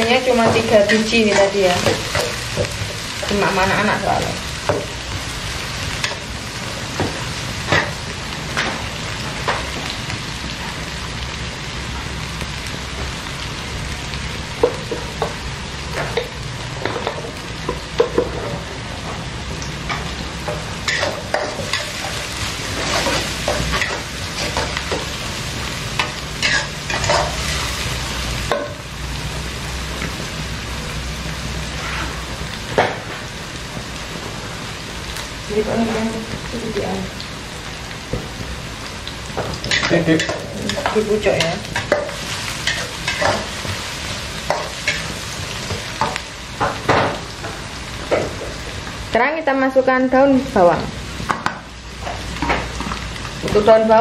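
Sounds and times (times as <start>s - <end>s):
food sizzling in oil: 0.0s - 54.0s
metal spatula scraping a wok: 20.8s - 25.0s, 31.7s - 32.3s.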